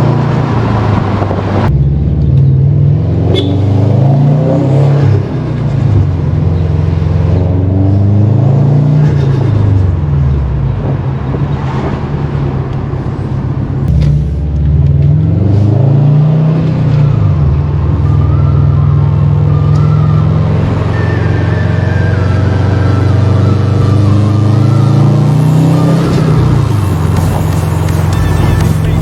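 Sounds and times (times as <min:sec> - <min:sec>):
car engine accelerating hard: 0:00.0 - 0:29.0
sharp exhaust crack: 0:25.2 - 0:29.0.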